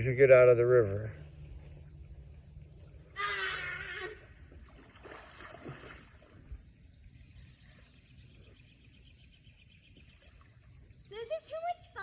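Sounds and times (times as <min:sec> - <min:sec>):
water splashing: 0:01.4 - 0:06.6
birds chirping: 0:06.2 - 0:12.0.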